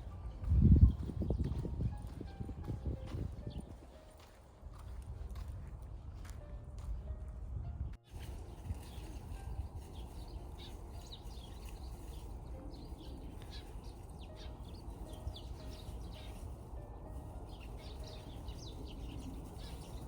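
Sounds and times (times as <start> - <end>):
small birds chirping: 8.0 - 20.0.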